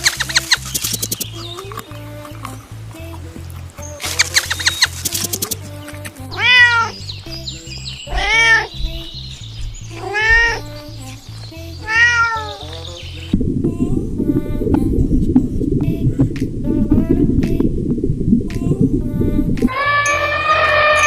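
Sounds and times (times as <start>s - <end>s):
background music with bass line: 0.0s - 21.0s
cat meowing: 6.4s - 7.0s, 8.1s - 9.0s, 10.0s - 10.7s, 11.8s - 12.7s.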